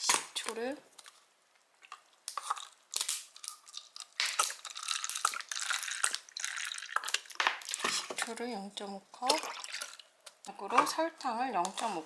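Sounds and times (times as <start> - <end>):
liquid pouring into cup: 3.4 - 7.9, 9.4 - 10.1.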